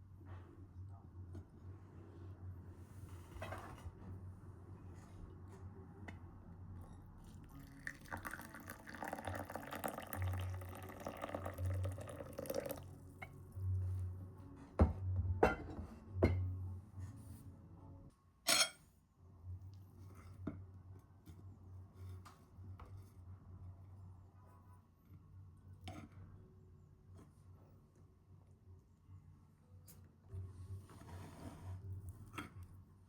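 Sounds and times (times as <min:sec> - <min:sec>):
water running: 0:07.6 - 0:13.0.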